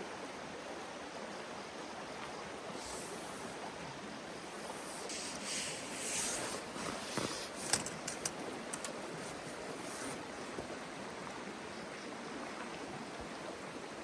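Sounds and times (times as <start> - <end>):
river water flowing: 0.0 - 14.0
sharp clicks: 6.6 - 9.4.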